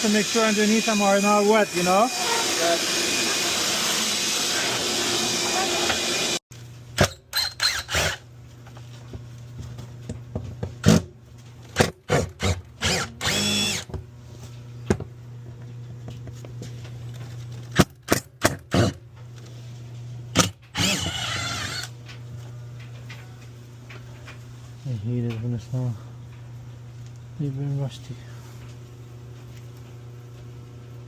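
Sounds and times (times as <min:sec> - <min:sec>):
cordless drill whirring: 0:07.3 - 0:08.2, 0:12.8 - 0:13.9, 0:20.8 - 0:21.9
steady low hum: 0:08.1 - 0:31.0.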